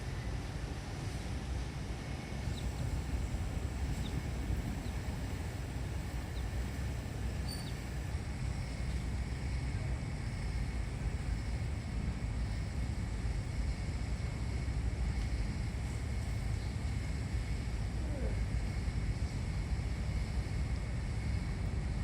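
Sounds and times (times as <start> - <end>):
low fluttering outdoor rumble: 0.0 - 22.0
faint high chirps: 7.4 - 7.8.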